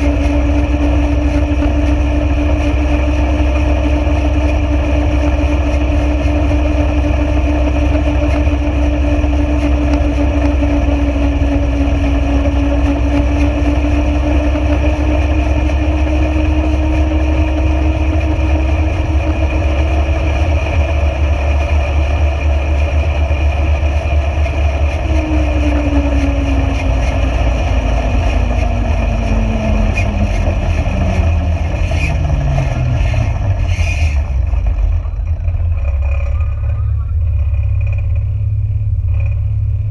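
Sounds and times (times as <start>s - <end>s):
engine slowing down: 0.0s - 39.9s
vehicle engine rumbling: 0.0s - 39.9s.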